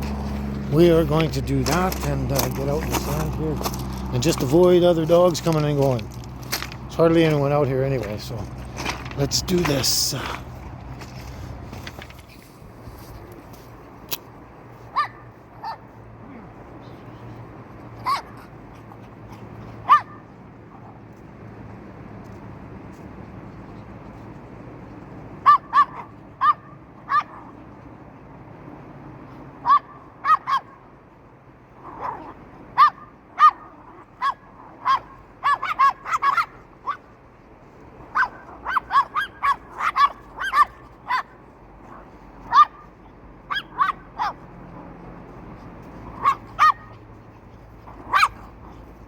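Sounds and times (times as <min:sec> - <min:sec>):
dog barking: 0:18.0 - 0:18.3, 0:19.8 - 0:20.2, 0:25.4 - 0:27.5, 0:29.6 - 0:30.8, 0:31.8 - 0:37.0, 0:38.1 - 0:42.9, 0:43.5 - 0:44.4, 0:46.1 - 0:47.0, 0:47.9 - 0:48.5.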